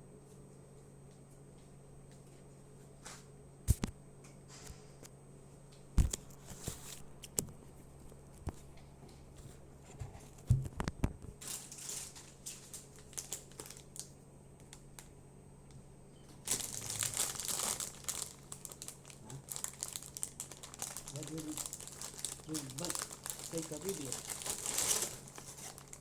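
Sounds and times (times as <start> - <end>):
chip bag crinkling: 11.4 - 15.1, 16.4 - 26.0
chips crunching: 16.5 - 26.0.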